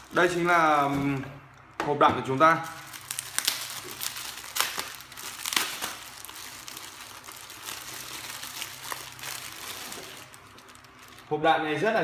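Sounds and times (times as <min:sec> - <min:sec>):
plastic packaging crinkling: 0:00.0 - 0:01.4, 0:02.3 - 0:11.4.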